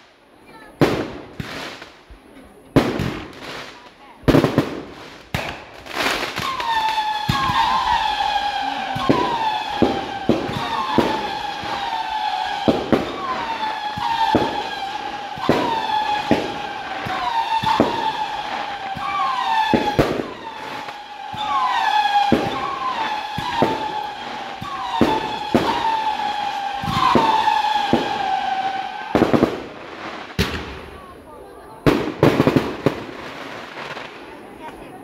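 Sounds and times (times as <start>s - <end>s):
fireworks bangs: 0.0s - 35.0s
siren-like wail: 6.5s - 29.8s.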